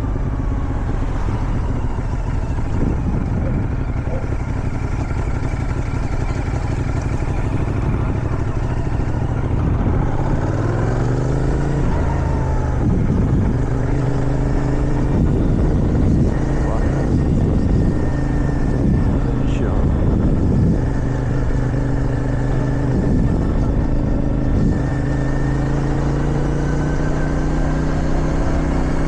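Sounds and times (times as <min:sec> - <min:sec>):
wind noise: 0:00.0 - 0:25.2
motorcycle engine revving: 0:00.0 - 0:29.0.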